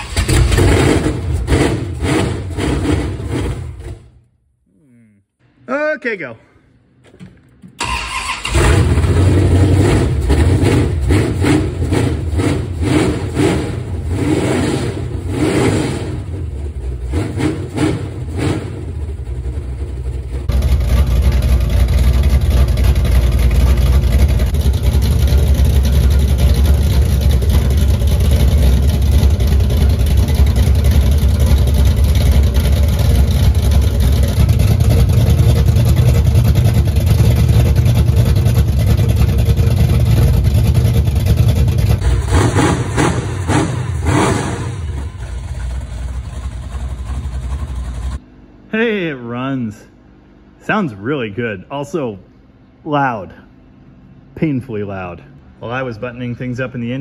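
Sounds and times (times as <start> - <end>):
car engine revving and rumbling: 0.0 - 4.3, 7.4 - 48.2.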